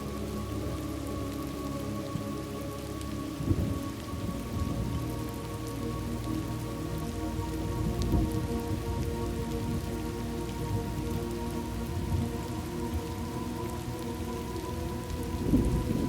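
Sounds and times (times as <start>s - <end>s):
steady rain: 0.0s - 16.0s
thunder rumbling: 15.2s - 16.0s.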